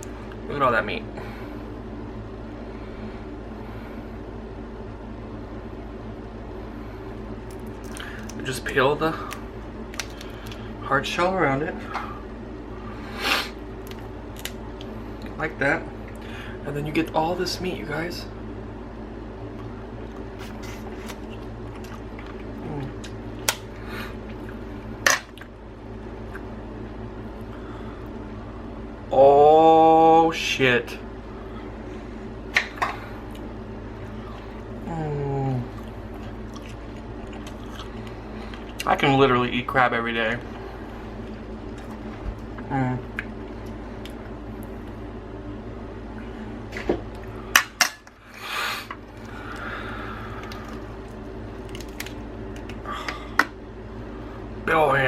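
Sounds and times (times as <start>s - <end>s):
low background hum: 0.0s - 55.0s
crab shell cracking: 7.4s - 8.4s, 9.3s - 10.7s, 20.9s - 23.7s, 50.3s - 53.6s.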